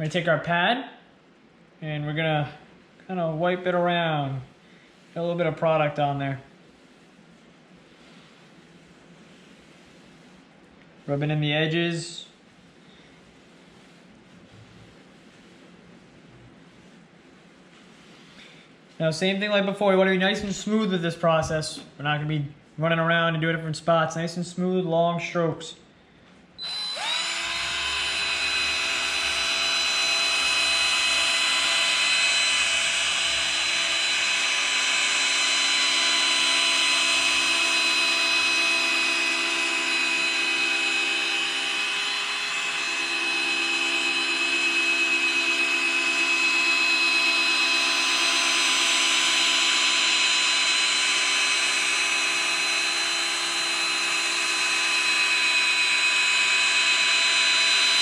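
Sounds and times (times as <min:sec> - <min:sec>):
electric drill polishing: 0:26.6 - 0:58.0.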